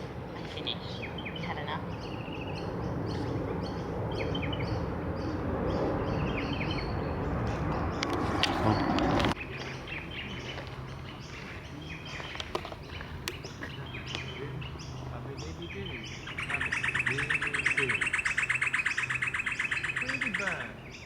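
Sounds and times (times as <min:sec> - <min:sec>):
birds chirping: 0:00.0 - 0:21.0
bird rattling trill: 0:16.2 - 0:20.7.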